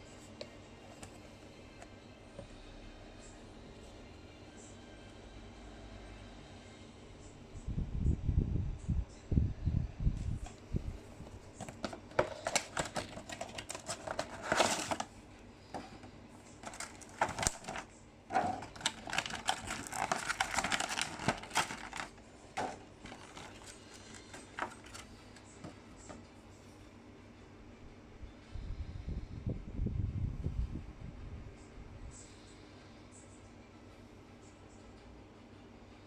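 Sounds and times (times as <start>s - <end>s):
packaging clicking and crinkling: 11.6s - 15.1s, 15.7s - 25.7s.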